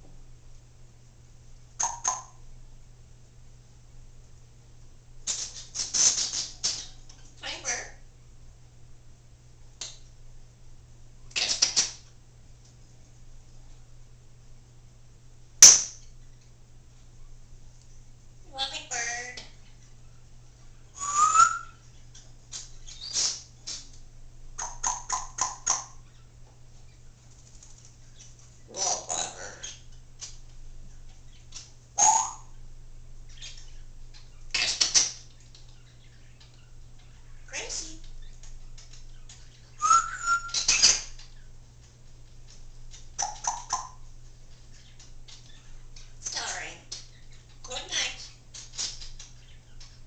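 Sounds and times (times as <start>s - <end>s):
parrot squawking: 1.8s - 2.4s, 5.9s - 8.0s, 18.5s - 19.4s, 28.7s - 29.9s, 32.0s - 32.5s, 39.8s - 41.2s
parrot rising whistle: 21.0s - 21.8s, 39.8s - 40.6s.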